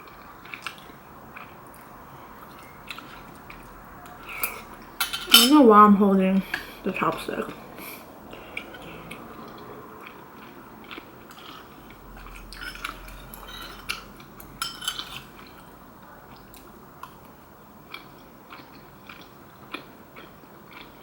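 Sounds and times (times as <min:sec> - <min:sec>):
soft chewing: 0:00.0 - 0:05.0, 0:07.7 - 0:21.0
utensils clinking on bowl: 0:04.3 - 0:05.7, 0:12.5 - 0:15.3.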